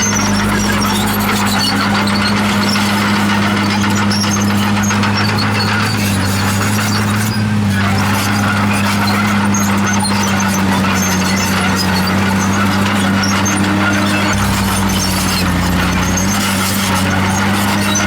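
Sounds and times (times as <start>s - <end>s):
bulldozer clatter: 0.0s - 18.0s
bulldozer diesel engine: 0.0s - 18.0s
high-pitched track squeaks: 0.0s - 18.0s.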